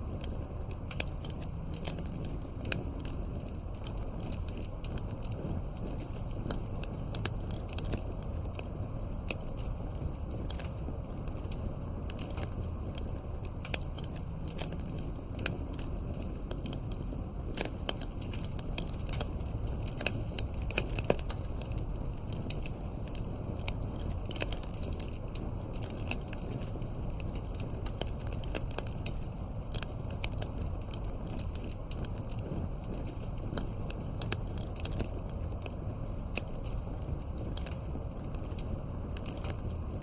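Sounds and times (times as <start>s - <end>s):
campfire crackling and popping: 0.0s - 40.0s
low rush of burning: 0.0s - 40.0s.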